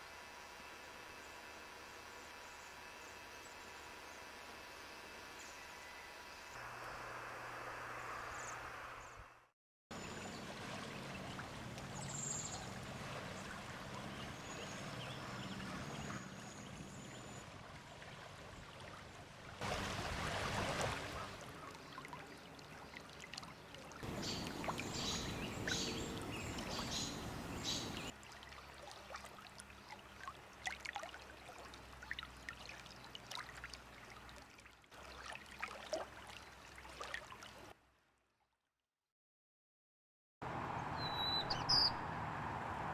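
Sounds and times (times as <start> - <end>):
running water: 10.0 - 37.8
high bird calls: 24.0 - 28.1, 40.8 - 42.1.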